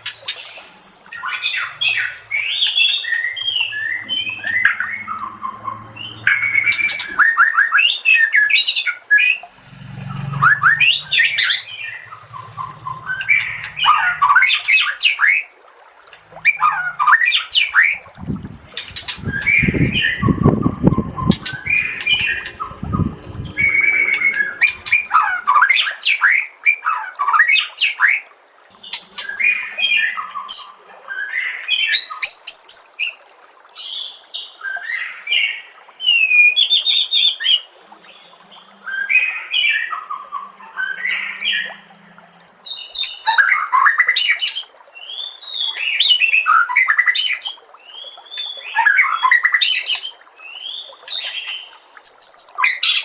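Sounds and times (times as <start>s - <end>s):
low thumps: 9.4s - 14.6s, 18.2s - 25.5s.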